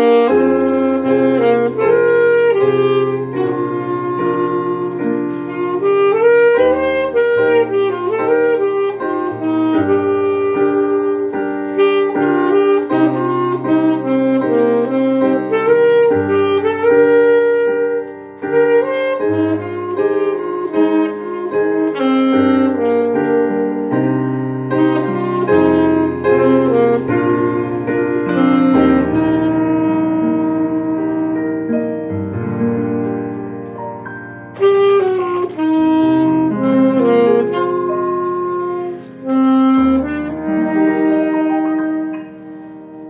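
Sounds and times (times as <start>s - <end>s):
piano chords: 0.0s - 43.0s
saxophone melody: 0.0s - 43.0s.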